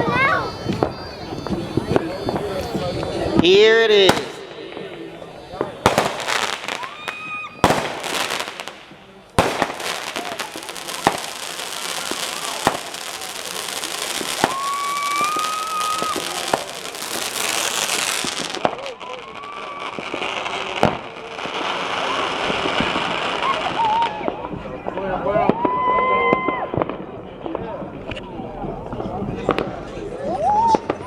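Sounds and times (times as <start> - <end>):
firework whistling tone: 0.0 - 24.5
firework bangs: 0.0 - 29.9
crackling fizz of fireworks: 0.0 - 31.0.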